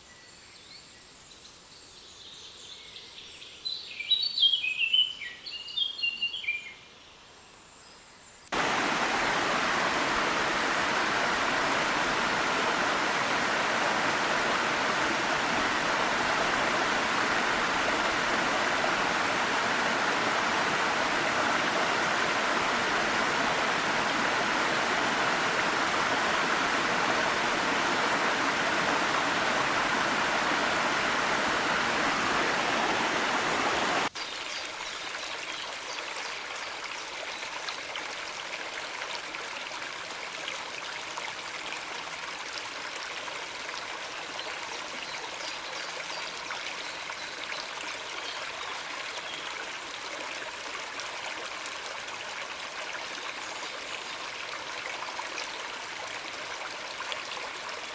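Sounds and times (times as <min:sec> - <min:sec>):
waterfall rushing: 0:08.5 - 0:34.1
birds chirping: 0:08.6 - 0:34.5.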